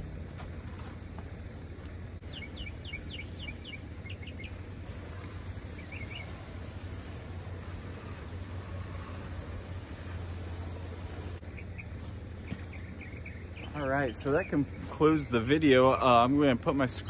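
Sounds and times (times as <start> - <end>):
low outdoor rumble: 0.0 - 17.0
bird whistling: 2.3 - 4.6, 5.7 - 6.5
hose spraying water on wall: 4.6 - 11.4.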